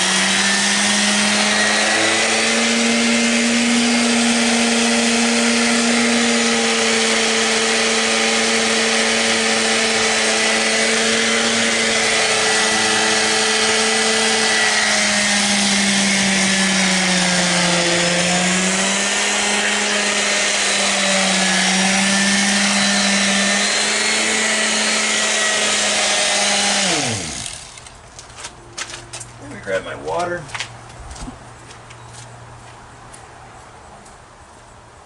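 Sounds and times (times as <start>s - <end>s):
concrete vibrator motor humming: 0.0s - 28.0s.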